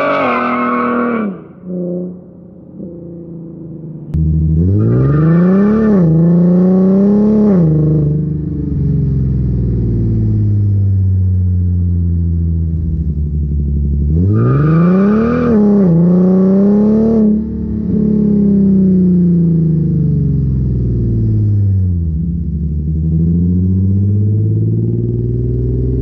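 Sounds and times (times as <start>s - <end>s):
car engine and exhaust accelerating: 0.0s - 26.0s.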